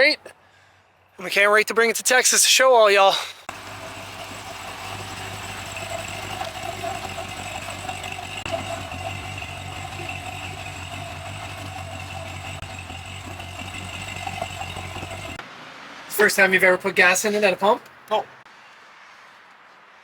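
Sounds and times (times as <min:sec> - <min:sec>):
vehicle engine idling: 0:03.5 - 0:15.5.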